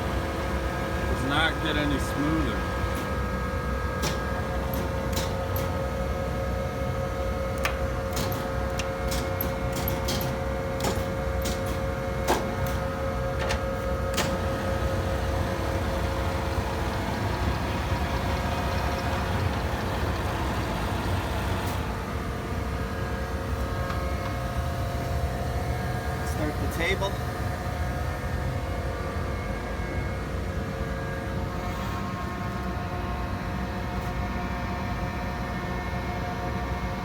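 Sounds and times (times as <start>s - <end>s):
planer machine hum: 12.4s - 22.6s.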